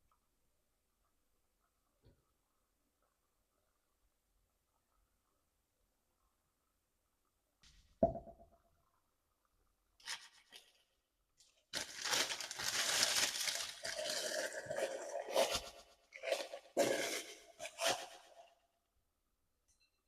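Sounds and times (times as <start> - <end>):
packaging crinkling and tearing: 11.7 - 14.6.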